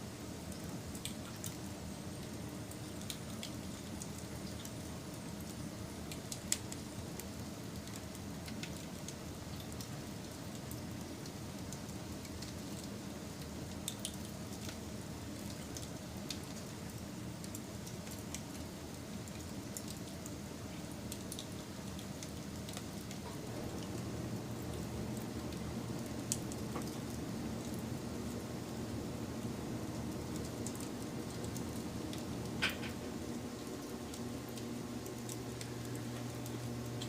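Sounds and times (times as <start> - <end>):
wood fire crackling and popping: 0.1 - 37.0.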